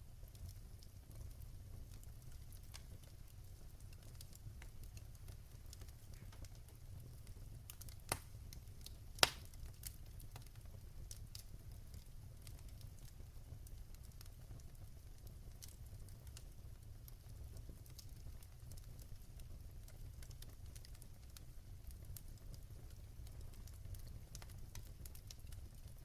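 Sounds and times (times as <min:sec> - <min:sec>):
fire crackling: 0:00.0 - 0:26.0
sharp fire pops: 0:07.7 - 0:08.6, 0:09.2 - 0:10.5.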